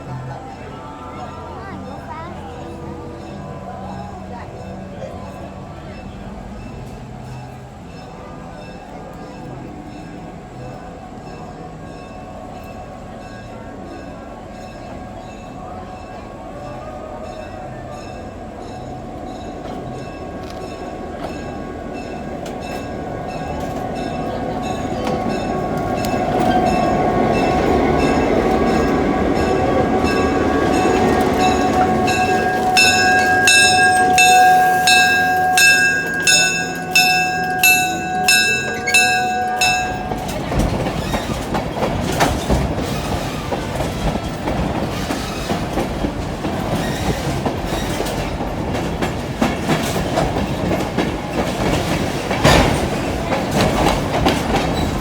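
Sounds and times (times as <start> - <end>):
locomotive bell ringing: 0.0 - 45.8
train wheels clattering over rail joints: 19.4 - 55.0.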